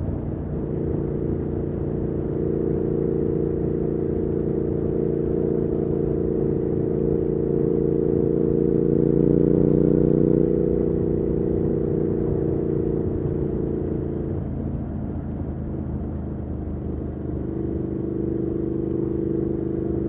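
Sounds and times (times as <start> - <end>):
motorcycle engine cruising: 0.0 - 20.0.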